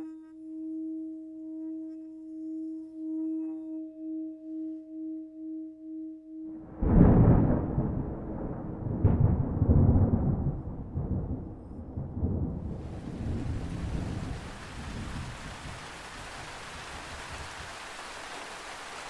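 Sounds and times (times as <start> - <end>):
thunder crack: 6.6 - 15.8
thunder rumbling: 6.6 - 17.8
steady rain: 6.6 - 19.0.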